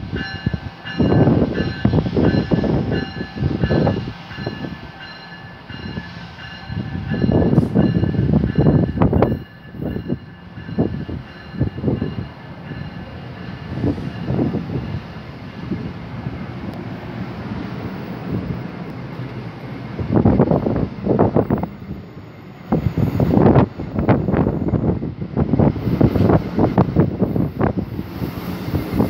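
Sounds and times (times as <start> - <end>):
wind on microphone: 0.0 - 5.0, 5.7 - 12.8, 19.9 - 29.0
train cars rolling past: 0.0 - 29.0.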